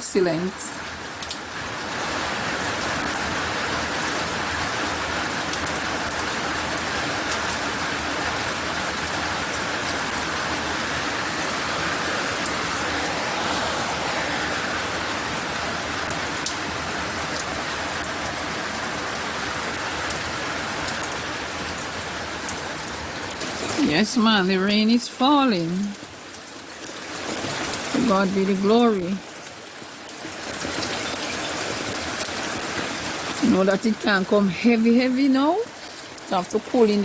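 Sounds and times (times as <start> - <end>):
rain falling: 0.0 - 37.0
raindrop ticks: 1.1 - 1.4, 20.9 - 23.8.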